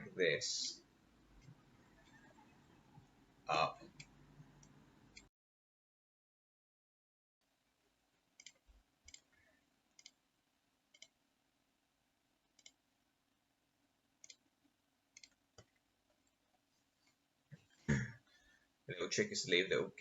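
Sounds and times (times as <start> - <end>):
faint room hiss: 0.0 - 5.3, 7.4 - 20.0
computer mouse clicks: 8.4 - 9.4, 10.0 - 10.2, 10.9 - 11.2, 12.6 - 12.8, 15.2 - 15.8.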